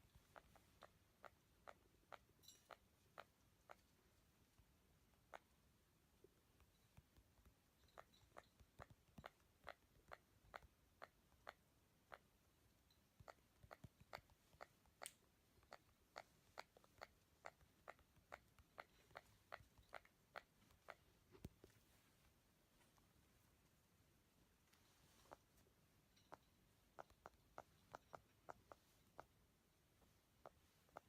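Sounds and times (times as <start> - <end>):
parrot mimicking keyboard clicks: 7.0 - 12.3, 13.2 - 21.1.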